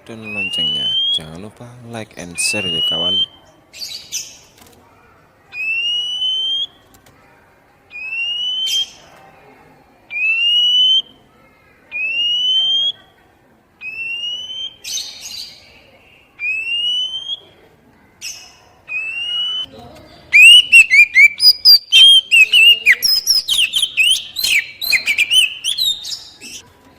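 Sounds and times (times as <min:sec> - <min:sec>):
bird whistled rising notes: 0:00.2 - 0:01.2, 0:18.9 - 0:19.7, 0:20.4 - 0:26.6.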